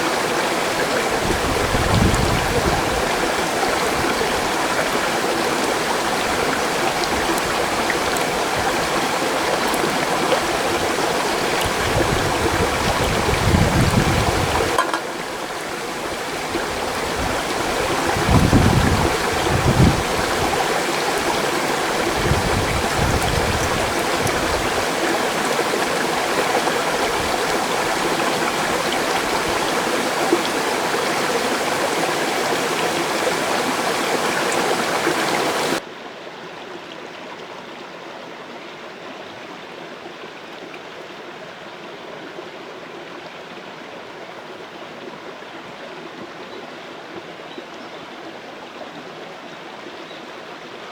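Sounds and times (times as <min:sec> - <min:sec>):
mountain stream rushing: 0:00.0 - 0:35.8.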